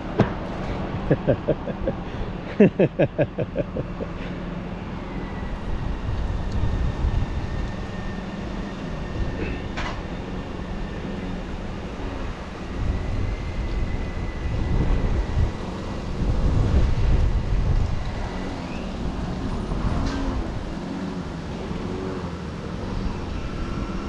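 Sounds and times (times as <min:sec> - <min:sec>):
gusty low rumble: 0:12.7 - 0:18.2.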